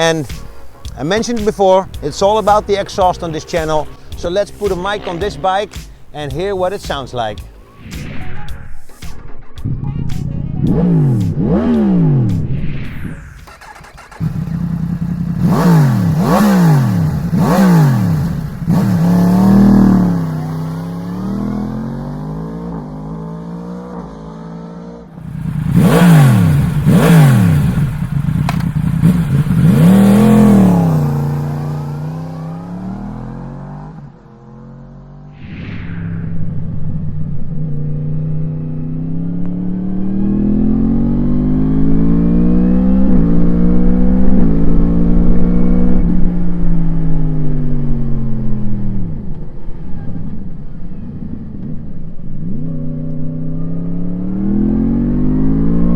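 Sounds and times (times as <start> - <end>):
motorcycle engine revving and idling: 10.5 - 12.5, 13.4 - 35.2, 36.5 - 55.9.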